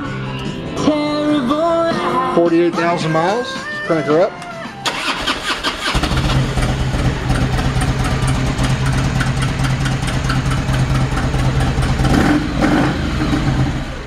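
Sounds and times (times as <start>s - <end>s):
starter cranking: 4.8s - 11.1s
motorcycle engine idling: 4.8s - 14.0s.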